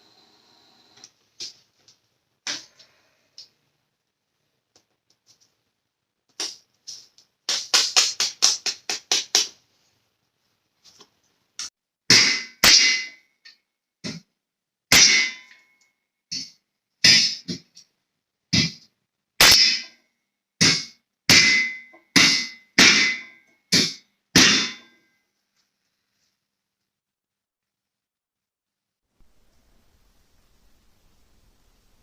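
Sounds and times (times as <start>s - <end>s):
hammer striking steel: 12.1s - 13.2s, 14.9s - 15.7s, 16.3s - 17.6s, 19.4s - 20.0s, 20.6s - 25.1s.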